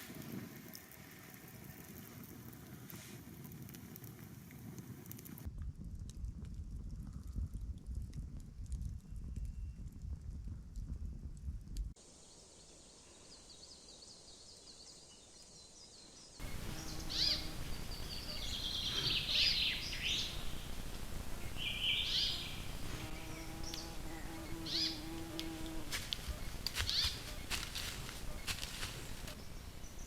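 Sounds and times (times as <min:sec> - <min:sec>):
songbirds chirping and trilling: 0:12.4 - 0:30.0
low rumbling noise: 0:16.4 - 0:30.0
steady low buzz: 0:16.4 - 0:30.0.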